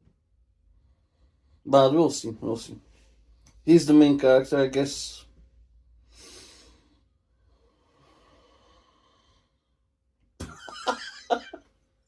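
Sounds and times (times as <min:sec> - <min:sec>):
faint breath: 0:06.0 - 0:09.8.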